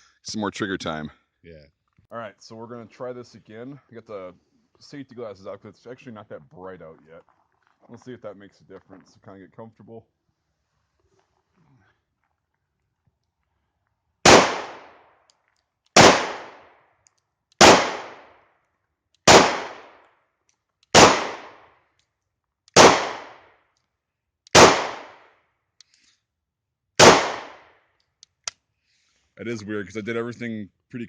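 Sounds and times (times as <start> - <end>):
pistol shots: 14.2 - 15.0, 16.0 - 16.8, 17.6 - 18.4, 19.2 - 20.0, 20.9 - 21.7, 22.7 - 23.5, 24.5 - 25.3, 27.0 - 27.7.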